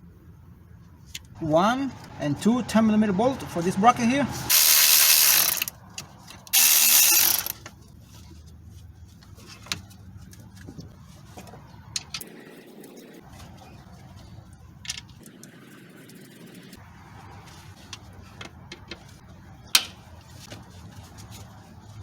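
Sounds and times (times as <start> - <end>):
power ratchet running: 4.5 - 5.8, 6.5 - 7.6.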